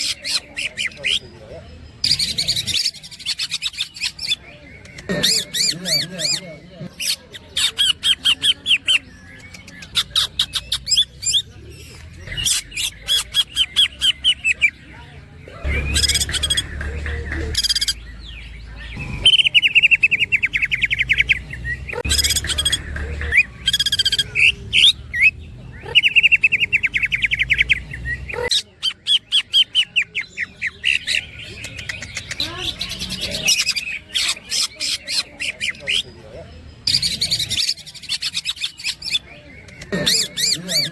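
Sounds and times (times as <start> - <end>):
songbird singing trills and whistles: 15.6 - 40.9.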